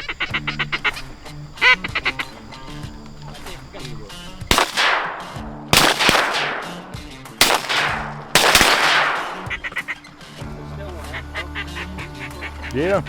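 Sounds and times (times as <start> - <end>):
shotgun blasts echoing: 4.4 - 9.7.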